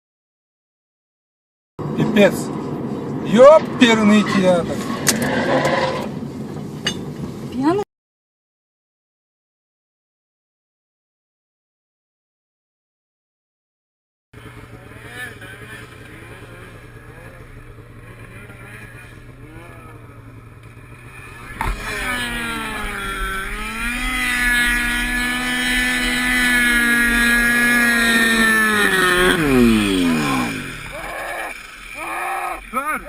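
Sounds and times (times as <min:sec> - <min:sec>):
engine humming quietly: 0:01.8 - 0:07.8, 0:14.4 - 0:33.0
engine revving hard: 0:03.9 - 0:06.2, 0:20.7 - 0:33.0.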